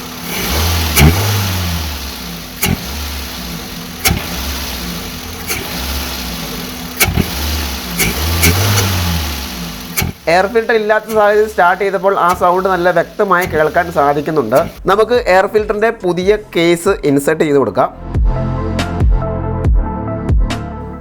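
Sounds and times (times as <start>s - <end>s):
car engine revving: 0.0s - 15.0s
sharp clicks: 2.6s - 2.9s, 4.0s - 4.4s, 5.4s - 5.8s, 7.0s - 9.1s, 9.9s - 10.3s, 11.1s - 11.6s, 12.2s - 14.8s.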